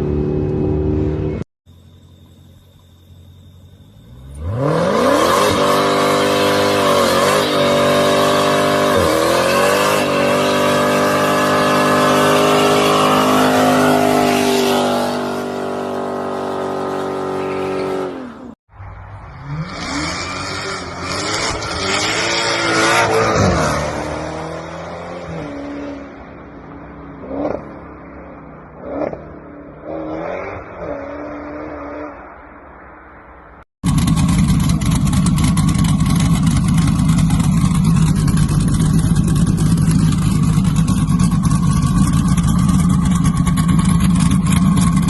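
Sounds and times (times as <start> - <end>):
car engine accelerating hard: 4.2 - 18.5, 33.8 - 45.0.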